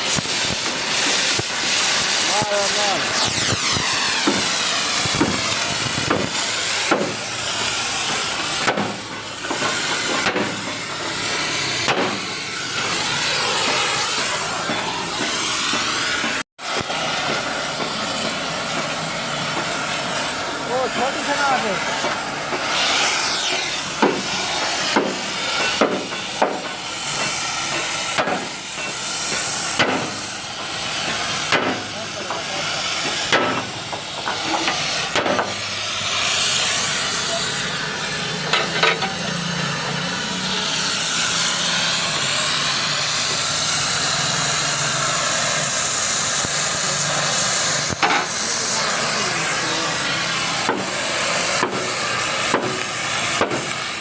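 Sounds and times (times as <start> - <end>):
loud steady hiss: 0.0 - 54.0
hammer striking metal: 6.9 - 7.2, 8.1 - 10.8, 11.8 - 12.2, 24.0 - 24.3, 24.9 - 30.2, 31.1 - 32.4, 33.0 - 35.6, 48.0 - 48.3, 50.6 - 50.9.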